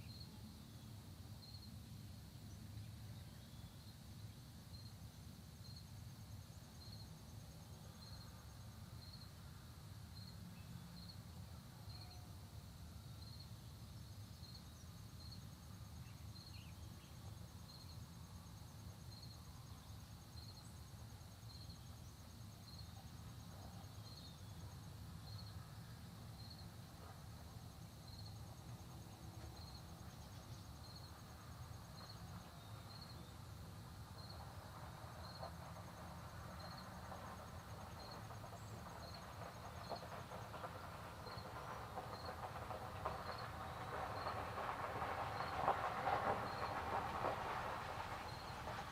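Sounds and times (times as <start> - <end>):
insect chirping: 0.0 - 48.9
high insect trill: 13.2 - 48.9
low steady rumble: 13.7 - 48.9.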